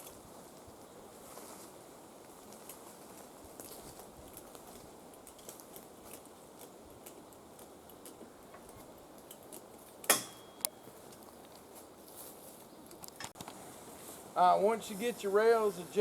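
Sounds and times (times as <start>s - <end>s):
sharp metallic clank: 10.1s - 10.7s.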